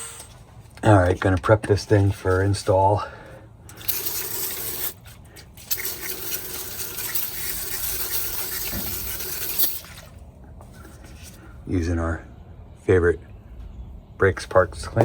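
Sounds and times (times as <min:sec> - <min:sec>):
aerosol spraying: 0:03.8 - 0:10.1.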